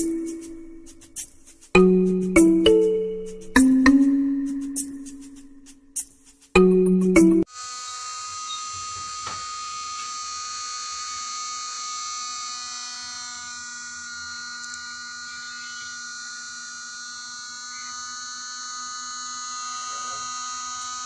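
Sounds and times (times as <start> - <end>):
steady buzz: 7.4 - 21.0.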